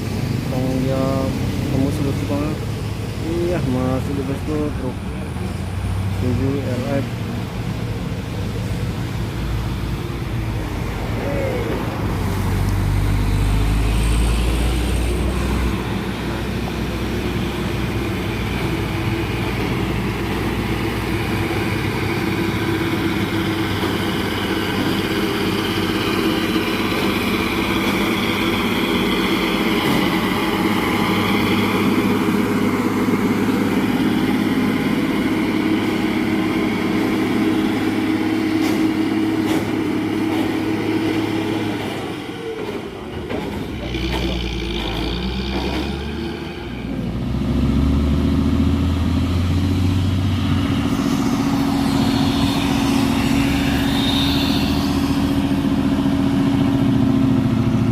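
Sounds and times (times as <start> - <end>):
heavy truck engine labouring: 0.0 - 57.9
high whine: 49.9 - 57.9.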